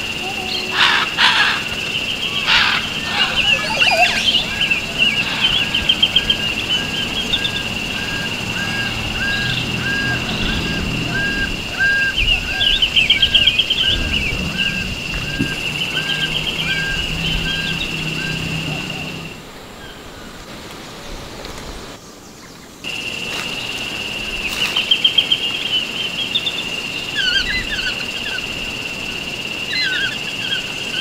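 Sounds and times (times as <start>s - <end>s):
rapid chattering bird trills: 0.0s - 19.3s
steady high-pitched tone: 0.0s - 19.3s
bird repeating short call: 0.4s - 6.4s.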